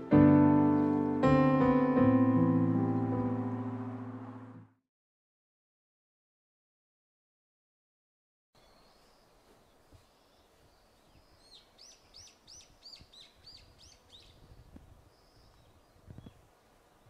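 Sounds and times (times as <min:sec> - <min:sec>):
small bird singing: 0:08.6 - 0:17.0.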